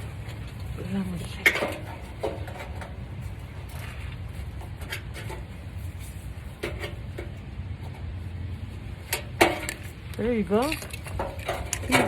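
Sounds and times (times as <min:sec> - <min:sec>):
scrapes and knocks on car parts: 0:01.4 - 0:10.0.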